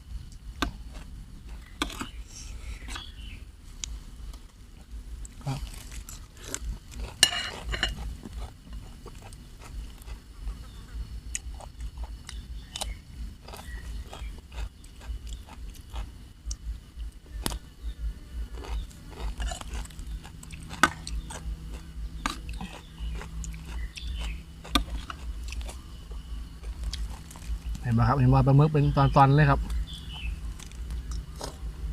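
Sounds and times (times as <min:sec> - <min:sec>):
person chewing food: 0:00.3 - 0:02.2, 0:03.8 - 0:27.8, 0:29.6 - 0:31.8.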